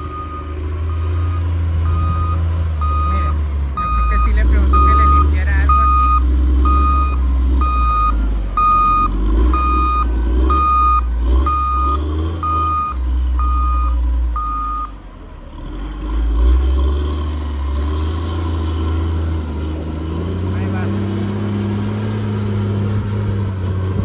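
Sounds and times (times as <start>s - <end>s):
reversing alarm beeping: 0.0s - 15.0s
deep engine rumble: 0.0s - 24.0s.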